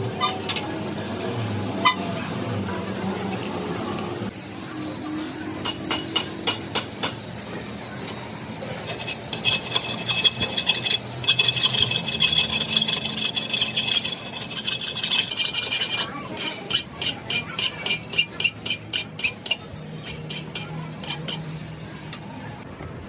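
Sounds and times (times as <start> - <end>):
tool rasping with high whine: 7.4 - 22.6.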